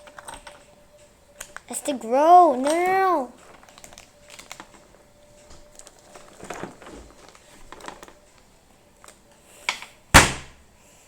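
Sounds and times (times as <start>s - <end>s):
handling rustles: 0.0s - 10.6s
hand smacking plastic pack: 2.6s - 10.6s.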